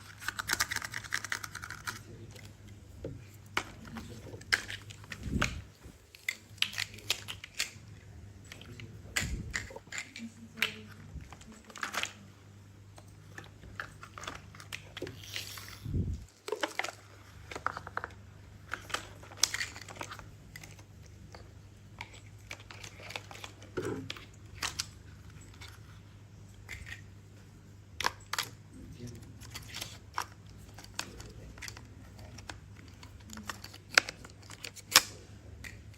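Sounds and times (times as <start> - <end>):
toy pieces clicking and clacking: 0.0 - 2.1
steady low hum: 0.0 - 35.9.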